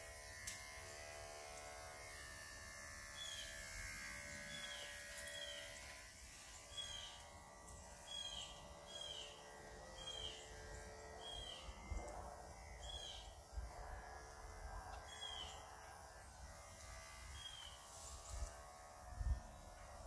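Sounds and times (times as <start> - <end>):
outdoor background noise: 0.0 - 20.0
bird chirping: 6.7 - 7.2, 8.1 - 9.3, 10.0 - 10.4, 15.1 - 15.6.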